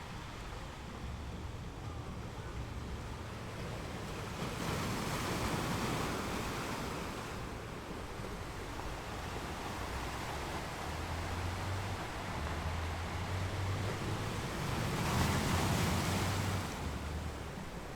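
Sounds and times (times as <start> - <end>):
ocean surf washing onto beach: 3.6 - 17.9.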